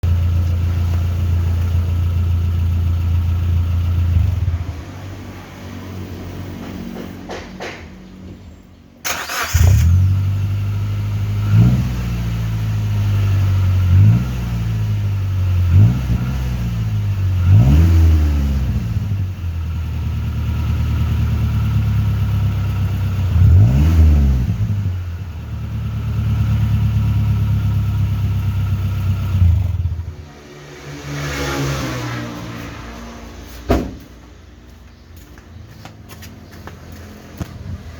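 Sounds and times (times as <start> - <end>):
car engine starting and idling: 0.0 - 5.0, 9.0 - 30.3
engine revving: 9.1 - 19.4, 20.0 - 25.1, 26.0 - 33.6.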